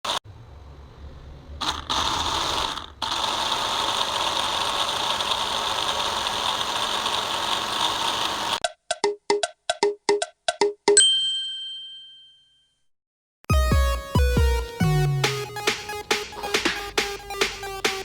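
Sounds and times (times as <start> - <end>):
small electric motor whirring: 1.6 - 8.6.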